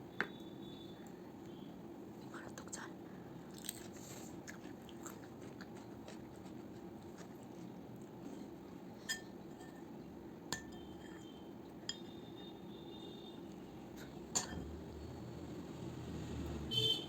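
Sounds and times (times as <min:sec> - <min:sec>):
low background hum: 0:00.0 - 0:17.0
tableware clinking: 0:14.3 - 0:14.7.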